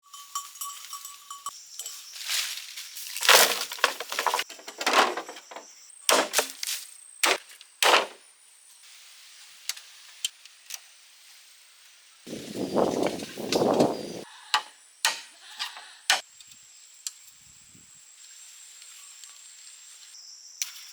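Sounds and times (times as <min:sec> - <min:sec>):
bamboo cracking and splintering: 0:03.0 - 0:08.2.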